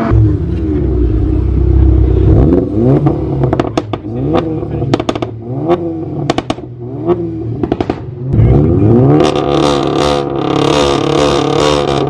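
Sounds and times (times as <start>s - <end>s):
car engine revving: 0.0s - 12.0s
exhaust pops and crackles: 3.0s - 5.4s, 6.2s - 6.7s, 7.6s - 8.3s.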